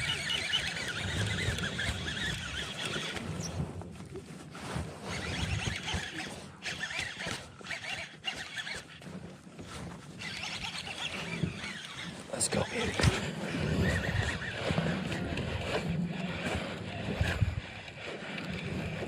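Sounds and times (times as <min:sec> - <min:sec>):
fishing reel whirring: 0:00.0 - 0:04.2, 0:04.8 - 0:19.0.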